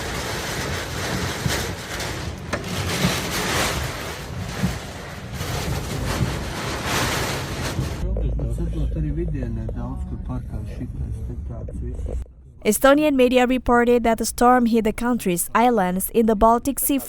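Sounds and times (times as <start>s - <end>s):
storm wind buffeting microphone: 0.0s - 8.0s.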